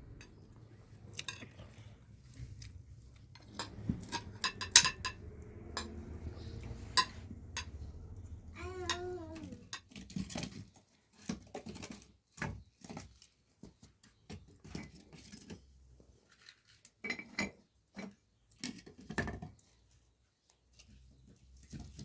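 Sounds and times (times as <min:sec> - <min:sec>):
cookware clinking and knocking: 0:03.4 - 0:06.0.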